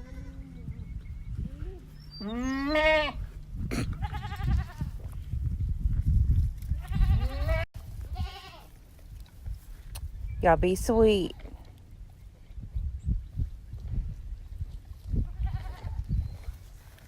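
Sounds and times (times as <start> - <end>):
goats bleating: 1.6 - 3.2, 3.8 - 4.9.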